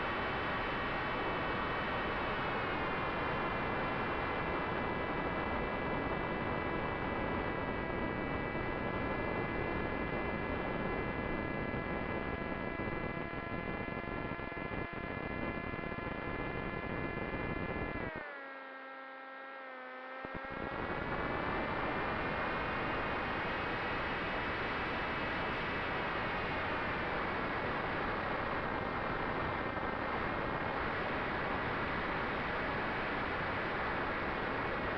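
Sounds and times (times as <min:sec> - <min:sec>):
electric motor and propeller whine: 0:18.1 - 0:20.8.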